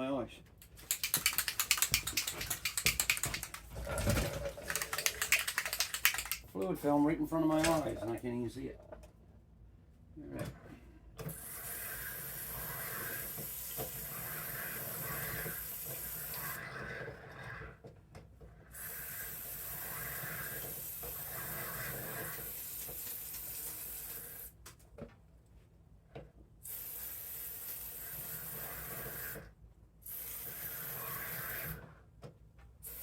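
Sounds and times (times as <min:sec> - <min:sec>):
aerosol can spraying: 0:00.6 - 0:03.7, 0:04.6 - 0:06.5.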